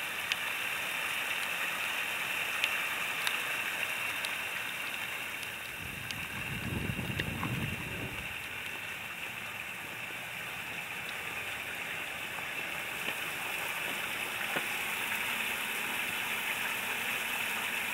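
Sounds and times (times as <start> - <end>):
rain hissing: 0.0 - 17.9
faint ticks: 2.6 - 6.5, 10.9 - 11.4.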